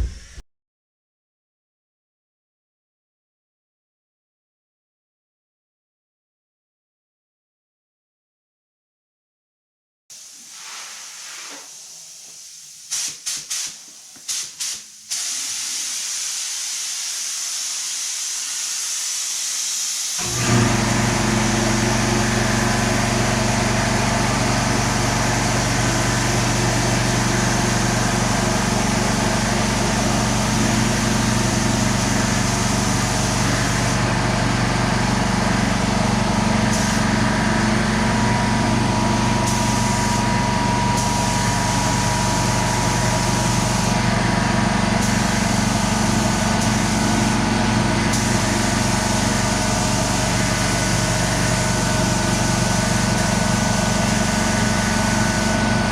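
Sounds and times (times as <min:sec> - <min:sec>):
machine motor hum with hiss: 0:10.2 - 0:55.9.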